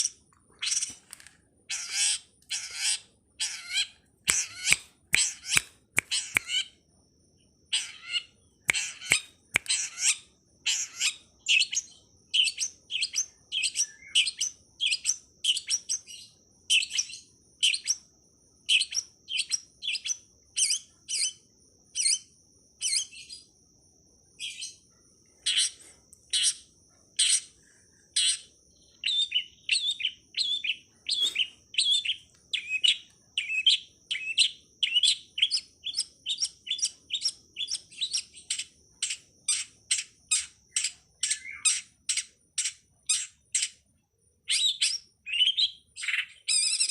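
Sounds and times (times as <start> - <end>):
bird calling sharp notes: 1.7 - 6.7.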